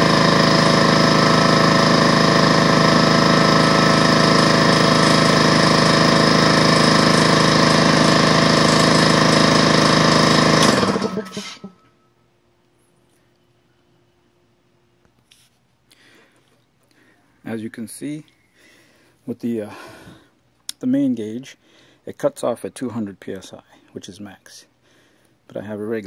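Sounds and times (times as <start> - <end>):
air compressor running: 0.0 - 11.9
compressor motor winding down: 0.0 - 11.9.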